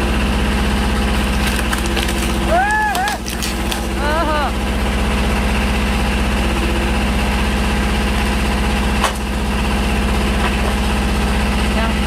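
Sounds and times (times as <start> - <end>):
tractor engine running: 0.0 - 12.0
log cracking: 1.2 - 4.0.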